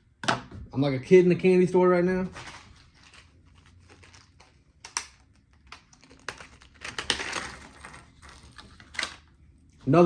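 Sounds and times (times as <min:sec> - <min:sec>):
plastic packaging clicks and crinkles: 0:02.4 - 0:09.3.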